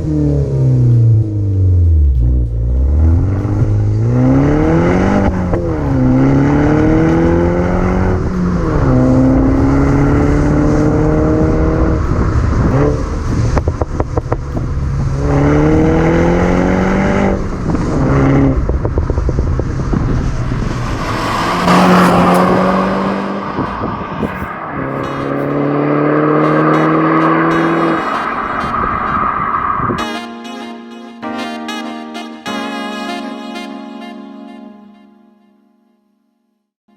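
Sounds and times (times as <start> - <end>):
car engine accelerating: 0.0 - 30.0
exhaust crackling pops: 11.9 - 15.4, 17.4 - 21.1.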